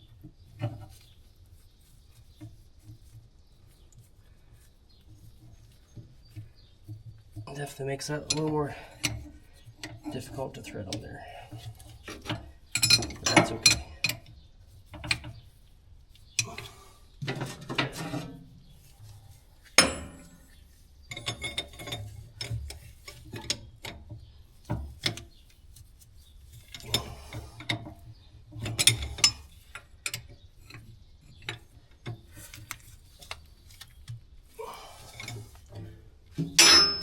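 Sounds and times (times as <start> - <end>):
metallic tool clicks and clanks: 36.4 - 37.0.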